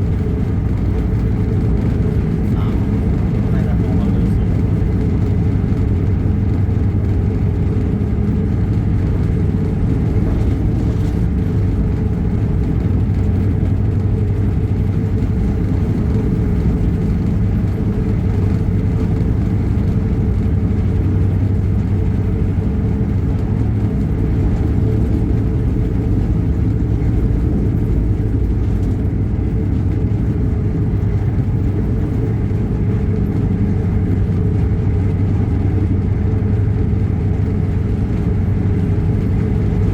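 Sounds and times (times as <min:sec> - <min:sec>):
vehicle engine hum: 0:00.0 - 0:39.9.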